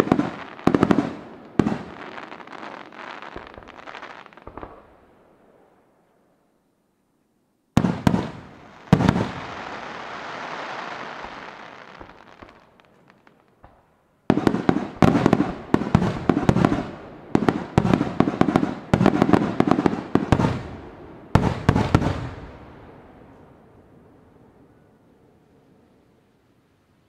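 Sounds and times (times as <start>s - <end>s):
crackling hiss of fireworks: 0.0s - 6.7s, 7.7s - 27.0s
rapid barrage of firework bangs: 7.8s - 10.5s, 14.3s - 20.8s, 21.4s - 22.4s.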